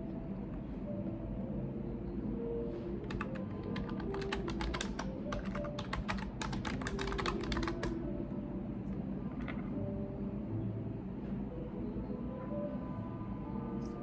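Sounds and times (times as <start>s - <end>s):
low background hum: 0.0s - 14.0s
computer keyboard typing: 3.0s - 8.0s.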